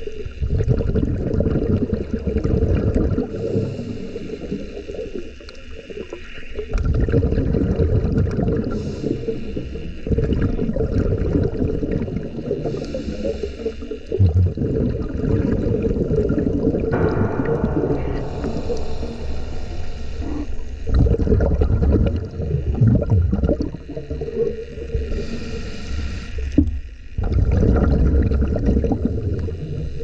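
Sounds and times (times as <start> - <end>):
water gurgling underwater: 0.4 - 3.3, 6.7 - 8.8, 10.1 - 12.7, 14.1 - 17.8, 20.9 - 25.0, 27.2 - 29.6.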